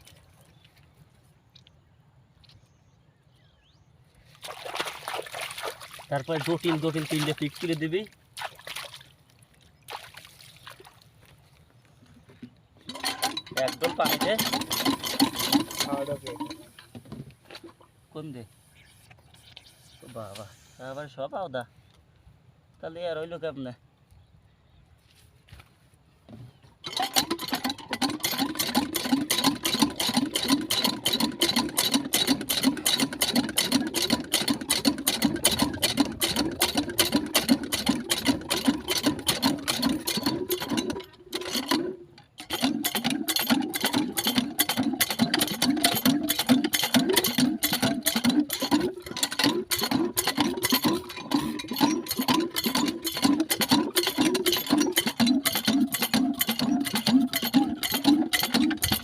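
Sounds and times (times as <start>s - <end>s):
small engine clattering: 12.8s - 17.9s, 26.8s - 59.0s.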